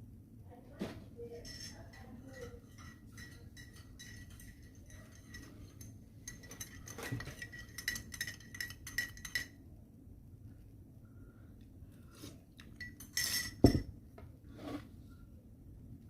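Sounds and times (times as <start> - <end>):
spoon clinking against glass: 1.4 - 9.6, 12.8 - 13.8.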